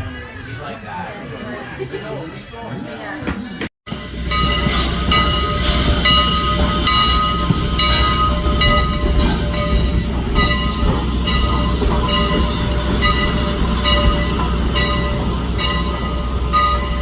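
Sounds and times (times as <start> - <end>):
locomotive bell ringing: 3.9 - 17.0
low rumble of moving train: 3.9 - 17.0.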